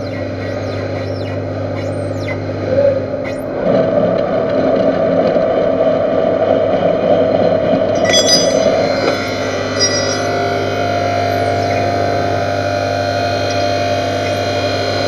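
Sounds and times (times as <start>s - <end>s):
lathe tool cutting metal: 8.0s - 15.0s
metal lathe humming: 8.0s - 15.0s.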